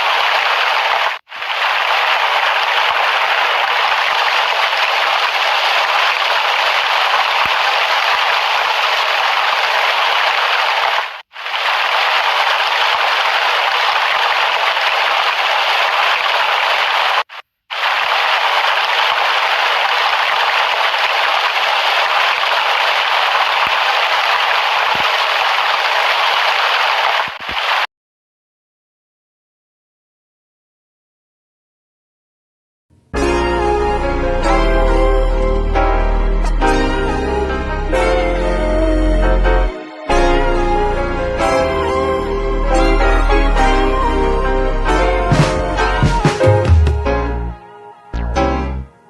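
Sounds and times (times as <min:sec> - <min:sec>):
rain hiss: 0:00.0 - 0:27.9.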